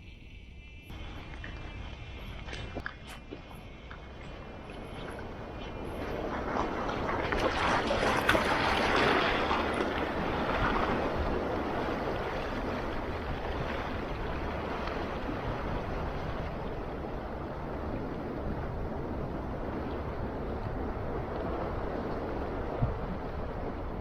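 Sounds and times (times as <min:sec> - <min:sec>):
sea waves washing on shore: 0:00.9 - 0:24.0.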